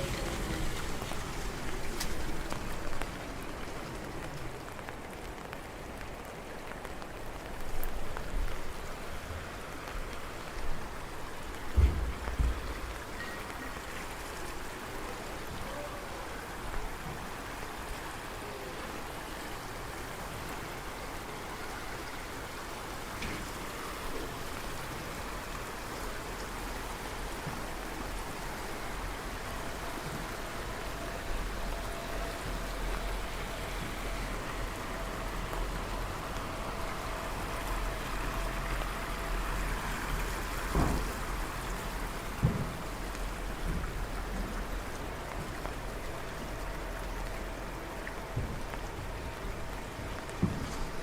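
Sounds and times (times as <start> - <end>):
steady rain falling: 0.0 - 51.0.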